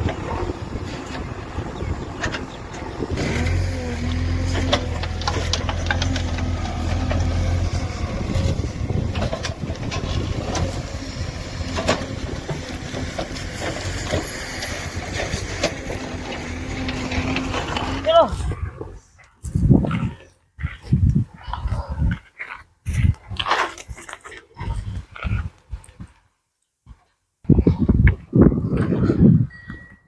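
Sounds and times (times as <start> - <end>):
diesel engine humming: 0.0 - 18.3
knocks and clanks: 2.1 - 18.0.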